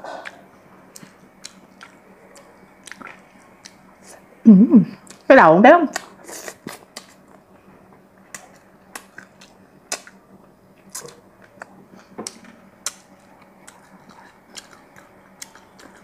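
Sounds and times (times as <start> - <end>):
person chewing: 0.1 - 4.2, 5.9 - 7.4, 8.3 - 10.2, 10.8 - 16.0
mouth clicks and wet smacks: 1.0 - 3.8, 5.9 - 7.2, 8.3 - 10.2.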